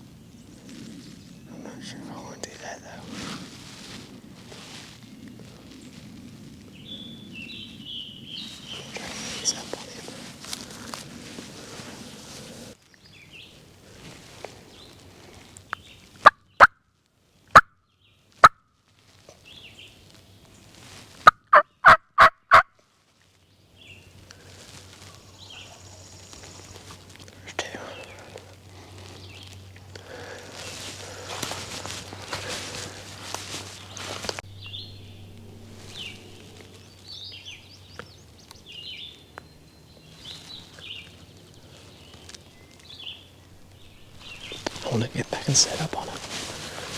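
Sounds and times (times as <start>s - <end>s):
small songbirds chirping: 0.0s - 4.2s, 5.0s - 16.7s, 19.3s - 21.0s, 23.3s - 46.9s
rustling of movement: 0.0s - 16.2s, 18.3s - 21.3s, 22.9s - 46.9s
turkey gobbling: 21.2s - 22.6s.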